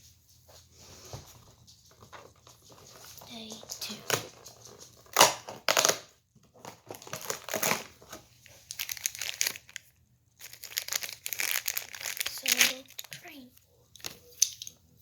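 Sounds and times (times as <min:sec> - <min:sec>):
cardboard being torn and crinkled: 0:06.6 - 0:08.0, 0:10.4 - 0:13.1.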